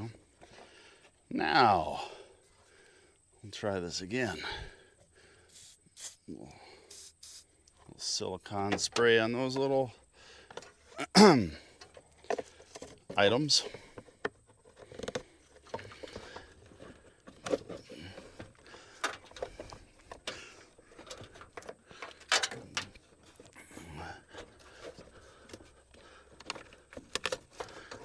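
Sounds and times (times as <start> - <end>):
hands handling engine parts: 10.4 - 11.0, 11.7 - 28.0
plastic clicks knocks and scrapes: 14.0 - 16.3, 26.3 - 28.0.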